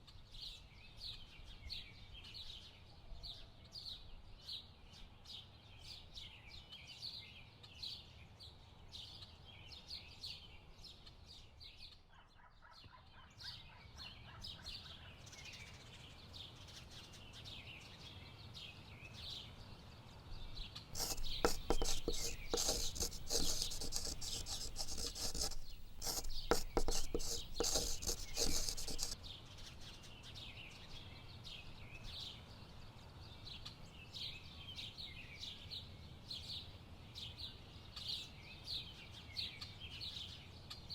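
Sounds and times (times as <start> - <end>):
rough rubbing and scraping: 21.0 - 29.2.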